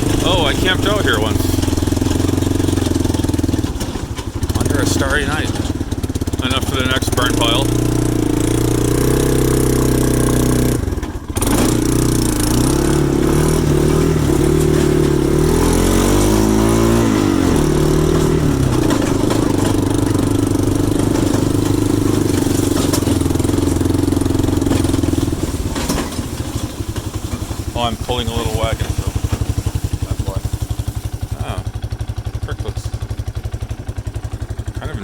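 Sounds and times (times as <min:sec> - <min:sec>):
engine running loud: 0:00.0 - 0:35.0.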